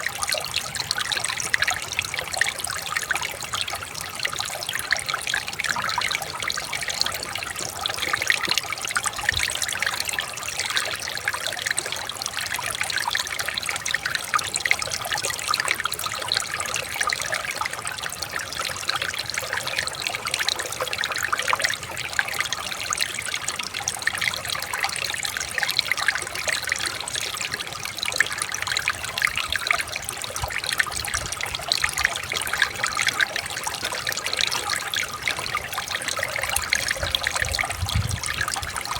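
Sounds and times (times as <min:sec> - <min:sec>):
water trickling over stones: 0:00.0 - 0:38.9.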